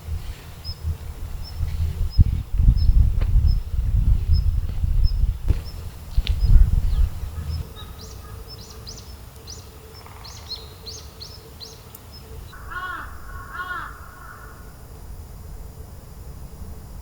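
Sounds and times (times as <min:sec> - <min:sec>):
small bird chirping: 0:00.0 - 0:14.7
crow cawing: 0:07.2 - 0:09.1, 0:12.5 - 0:14.9.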